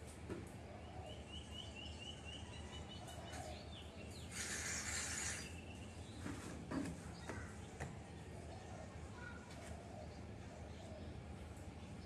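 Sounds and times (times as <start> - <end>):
bird chirping: 0.8 - 6.3
loud hissing rustle: 4.2 - 5.6.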